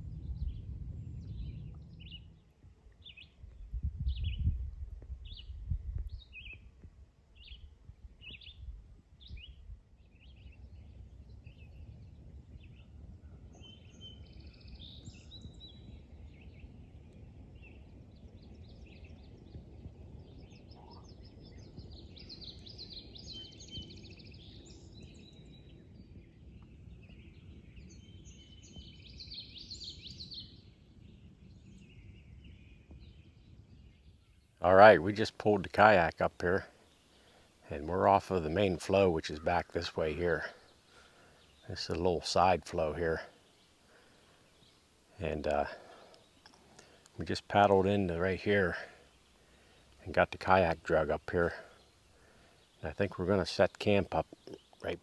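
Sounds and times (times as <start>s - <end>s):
bird chirping: 0.0s - 4.5s, 7.3s - 55.0s
low outdoor rumble: 0.0s - 4.8s, 34.6s - 55.0s
birdsong: 0.0s - 55.0s.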